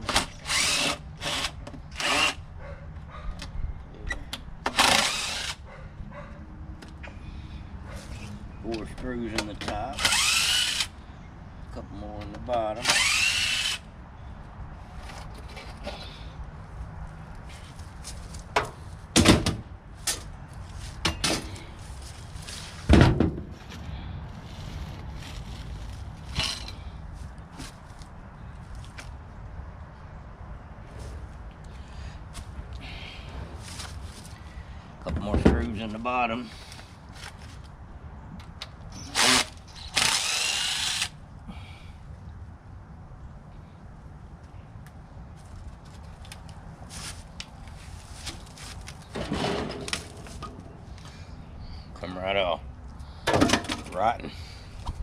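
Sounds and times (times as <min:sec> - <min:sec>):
power drill running: 0:00.4 - 0:02.4, 0:04.8 - 0:05.6, 0:10.0 - 0:10.9, 0:12.8 - 0:13.8, 0:39.2 - 0:41.1
sheet metal clanks and thuds: 0:49.1 - 0:50.7.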